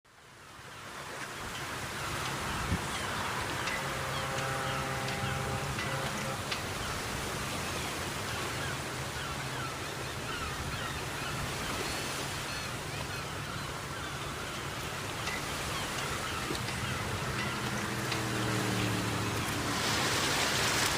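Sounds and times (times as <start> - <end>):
roar of surging water: 0.2 - 20.9
low steady hum: 2.9 - 8.1
held tone: 3.1 - 7.6.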